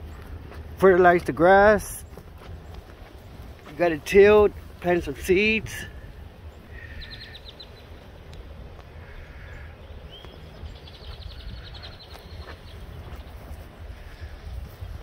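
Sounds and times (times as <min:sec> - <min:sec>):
wind rumble on microphone: 0:02.0 - 0:15.0
songbird trilling: 0:06.4 - 0:15.0.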